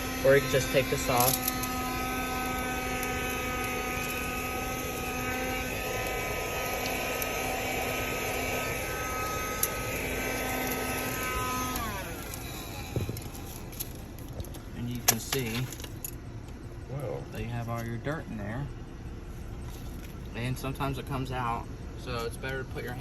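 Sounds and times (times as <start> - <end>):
handheld vacuum whining: 0.0 - 14.1.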